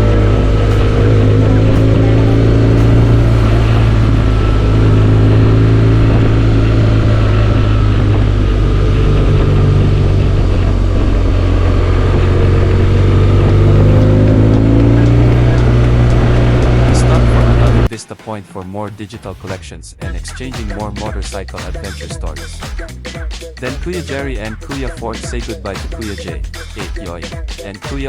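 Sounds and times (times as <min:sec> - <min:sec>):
motorcycle engine running: 0:00.0 - 0:17.9
road noise: 0:00.0 - 0:18.9.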